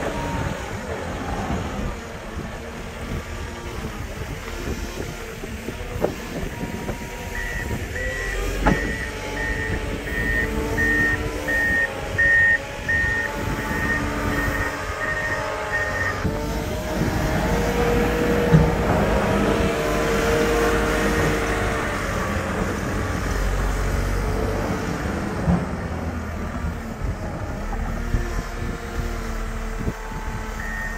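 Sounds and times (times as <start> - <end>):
snowplow engine running: 0.0 - 30.9
reversing alarm beeping: 6.5 - 16.3, 30.6 - 30.9.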